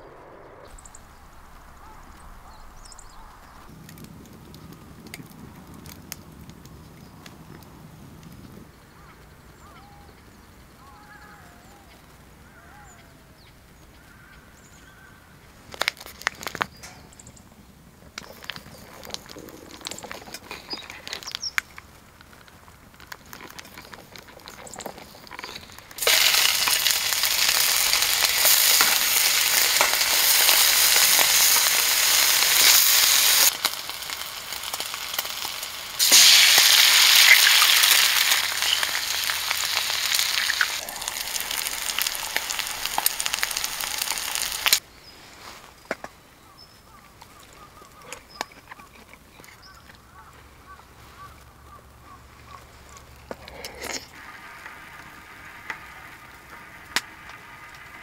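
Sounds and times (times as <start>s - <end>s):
bacon sizzling in frying pan: 25.4s - 44.8s, 54.2s - 58.0s.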